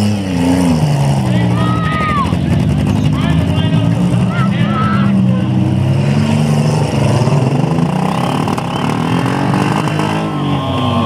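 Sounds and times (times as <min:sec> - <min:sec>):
car engines revving hard: 0:00.0 - 0:11.0.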